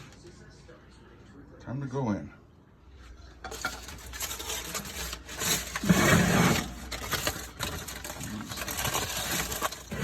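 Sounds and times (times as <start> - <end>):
pie sliding into oven: 3.6 - 7.9.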